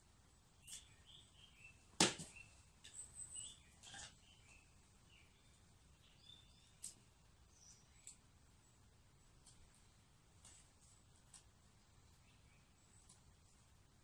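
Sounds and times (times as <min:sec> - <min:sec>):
small birds chirping: 0:00.3 - 0:14.0.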